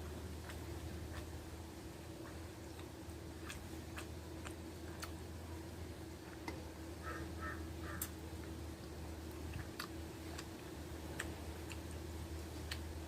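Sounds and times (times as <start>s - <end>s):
person chewing food: 0.0s - 5.4s, 7.4s - 13.0s
steady low hum: 0.0s - 13.0s
crow cawing: 7.0s - 8.1s.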